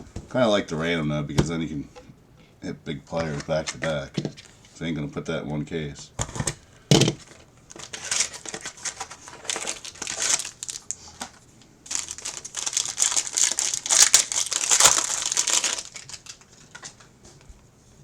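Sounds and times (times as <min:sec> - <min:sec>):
wrapper crinkling and tearing: 0:07.2 - 0:16.9.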